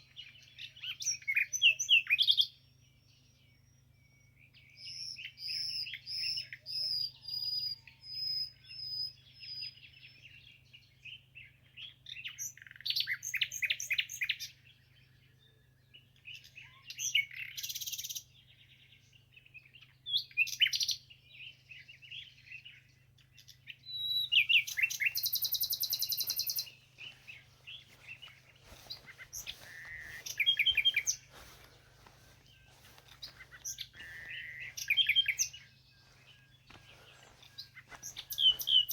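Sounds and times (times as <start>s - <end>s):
songbirds singing and calling: 0.0s - 38.9s
fast rattling bird trill: 24.4s - 26.7s, 37.8s - 38.9s.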